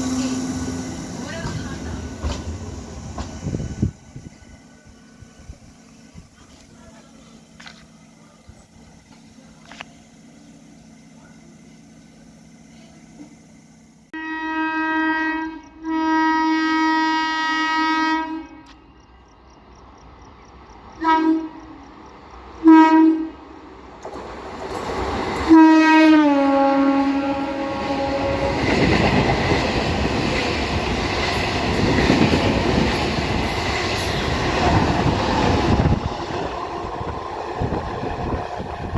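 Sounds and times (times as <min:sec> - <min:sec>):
train rushing past: 0:00.0 - 0:14.2, 0:19.5 - 0:38.9
train horn blasts: 0:14.1 - 0:18.8, 0:21.0 - 0:21.8, 0:22.6 - 0:23.4, 0:25.5 - 0:29.1.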